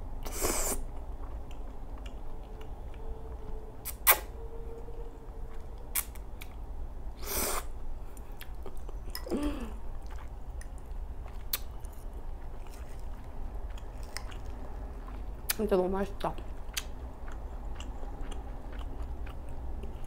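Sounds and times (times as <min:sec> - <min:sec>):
chewing and wet smacking: 0:00.8 - 0:04.2, 0:08.1 - 0:09.3, 0:09.9 - 0:20.0
sharp mouth clicks: 0:03.8 - 0:04.3.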